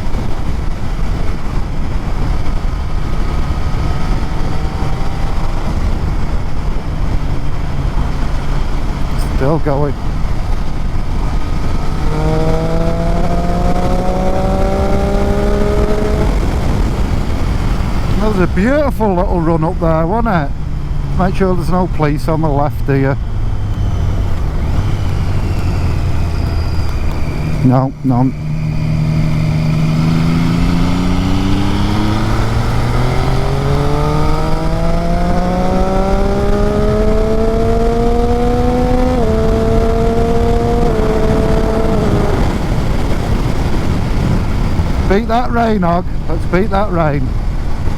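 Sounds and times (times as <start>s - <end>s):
low wind rumble: 0.0s - 47.9s
motorcycle engine accelerating: 0.0s - 47.9s.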